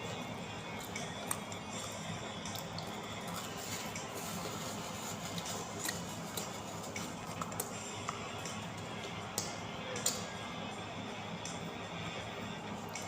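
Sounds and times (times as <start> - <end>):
person chewing food: 0.6 - 10.2.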